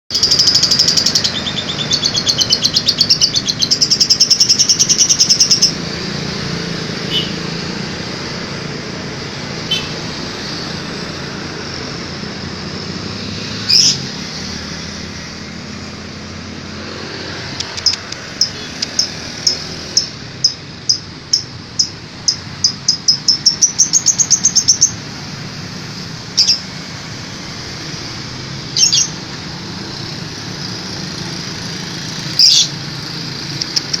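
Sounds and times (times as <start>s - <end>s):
lovebird chirping: 0.1s - 5.8s, 13.7s - 14.1s, 17.6s - 25.0s, 26.4s - 26.7s, 28.7s - 29.2s, 32.2s - 32.8s.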